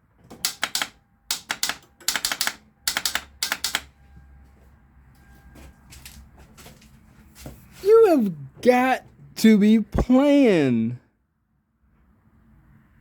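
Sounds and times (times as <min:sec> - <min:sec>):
starter solenoid clicking: 0:00.4 - 0:03.9.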